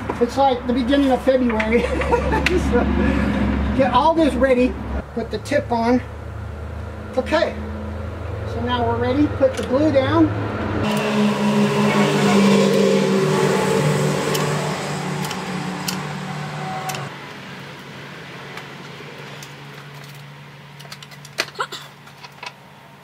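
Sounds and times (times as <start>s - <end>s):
vehicle engine running: 6.0s - 17.1s
sharp clicks and knocks: 9.5s - 9.8s, 15.2s - 16.1s.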